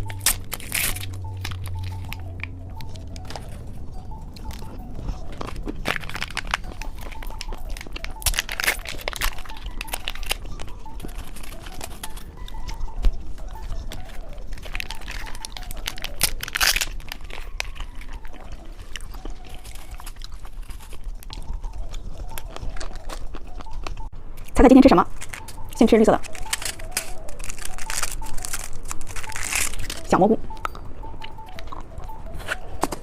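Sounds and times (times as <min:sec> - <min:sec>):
crunchy chewing: 0:00.0 - 0:33.0
plastic wrapper crinkling: 0:00.0 - 0:33.0.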